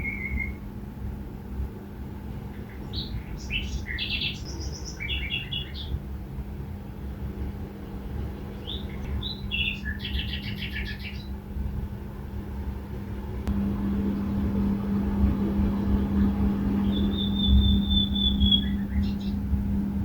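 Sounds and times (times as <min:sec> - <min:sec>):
low hum and rumble: 0:00.0 - 0:20.0
songbird chirping: 0:02.6 - 0:06.0, 0:08.6 - 0:11.4, 0:14.0 - 0:19.5.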